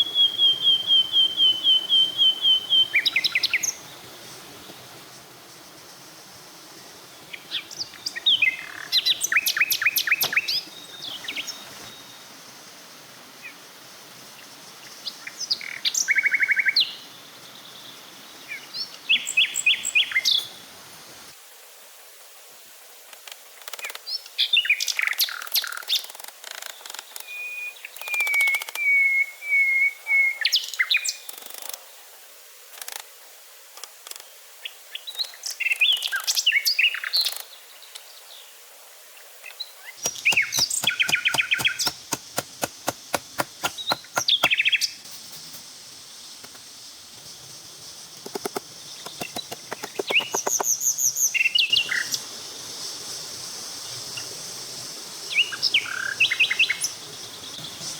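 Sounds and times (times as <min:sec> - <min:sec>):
birds chirping: 0:07.2 - 0:12.1, 0:40.0 - 0:52.4
rapid sharp clicks: 0:40.0 - 0:44.6, 0:48.2 - 0:50.7.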